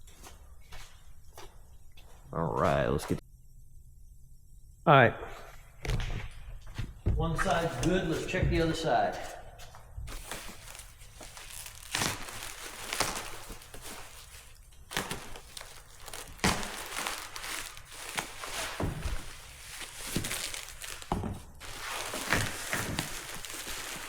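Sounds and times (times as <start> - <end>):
packing paper crinkling: 10.1 - 24.0.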